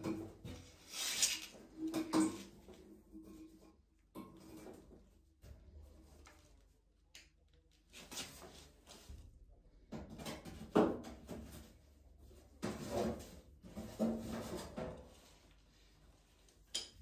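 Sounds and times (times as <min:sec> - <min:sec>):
objects knocking and rattling: 0:09.8 - 0:11.8, 0:12.5 - 0:15.2.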